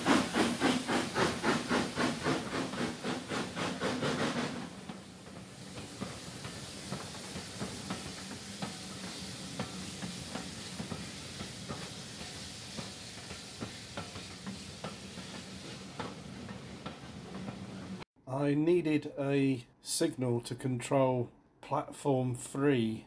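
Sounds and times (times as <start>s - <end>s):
train coaches rolling past: 0.0s - 18.0s.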